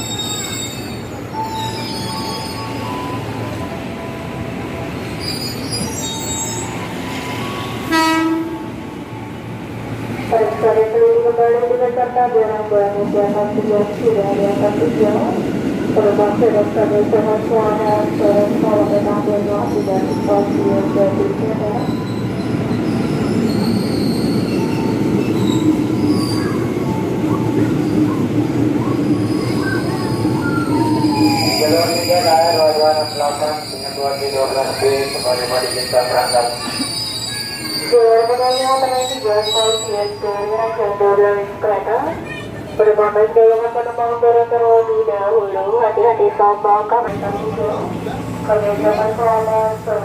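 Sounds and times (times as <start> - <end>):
high wheel squeals: 0.0 - 3.3, 5.0 - 7.8, 21.8 - 26.7, 29.1 - 40.6
electric train rumbling: 0.0 - 50.0
train horn blast: 7.8 - 8.7.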